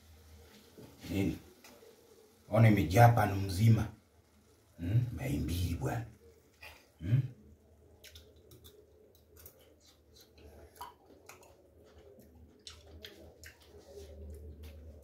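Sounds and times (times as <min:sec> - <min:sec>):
low steady hum: 0:00.0 - 0:15.0
faint chewing: 0:06.2 - 0:15.0.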